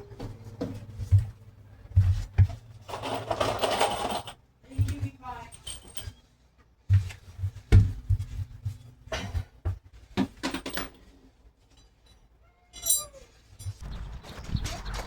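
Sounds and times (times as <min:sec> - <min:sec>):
metallic clinks of tools: 0:11.7 - 0:13.8.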